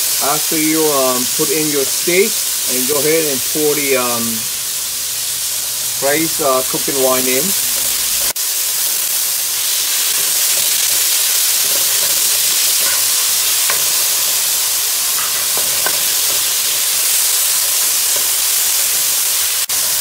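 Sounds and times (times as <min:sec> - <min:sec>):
meat sizzling in a frying pan: 0:00.0 - 0:20.0
spatula ticking against pan: 0:10.2 - 0:16.7.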